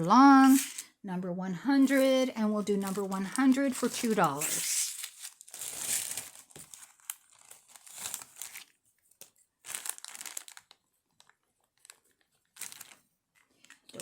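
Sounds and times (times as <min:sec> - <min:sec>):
plastic packaging crinkling: 0:01.9 - 0:14.0.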